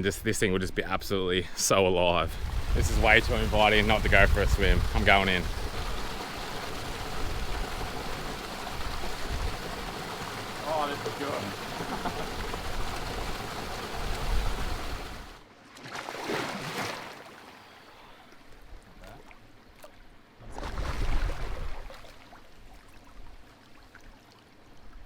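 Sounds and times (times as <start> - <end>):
microphone rumble: 2.2 - 6.2
water splashing in rock pool: 2.3 - 17.6, 18.9 - 24.4.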